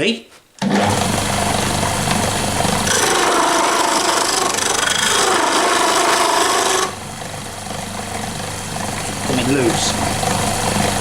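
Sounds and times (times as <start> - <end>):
turning tool scraping wood: 0.6 - 7.0
wood lathe motor humming: 0.6 - 11.0.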